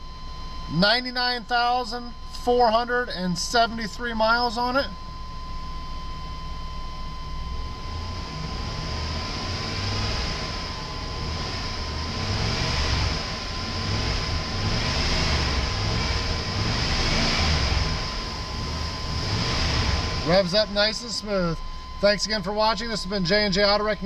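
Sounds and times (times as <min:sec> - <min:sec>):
car engine revving: 0:07.5 - 0:23.3.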